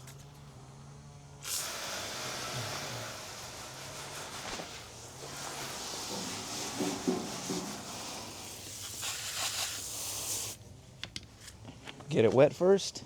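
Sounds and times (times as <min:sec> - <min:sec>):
hose spraying water on car: 0:01.4 - 0:10.6.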